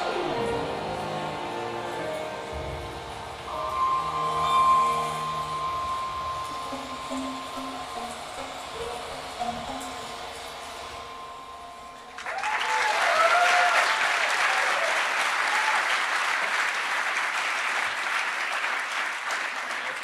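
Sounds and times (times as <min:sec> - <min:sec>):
audience applause: 0:00.0 - 0:02.6, 0:12.0 - 0:20.0
whoops and cheers: 0:12.2 - 0:16.2.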